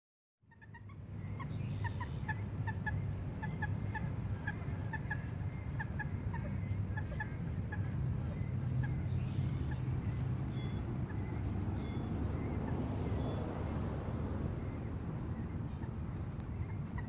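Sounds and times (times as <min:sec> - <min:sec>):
birds repeating short calls: 0:00.5 - 0:13.8.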